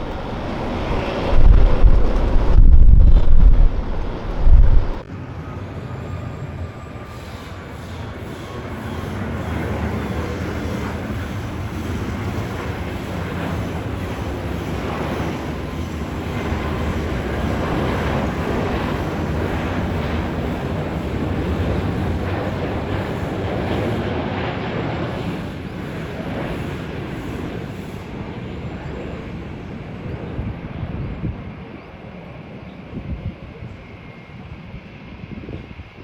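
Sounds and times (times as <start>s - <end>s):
jet airliner engines rumbling: 0.0s - 36.0s.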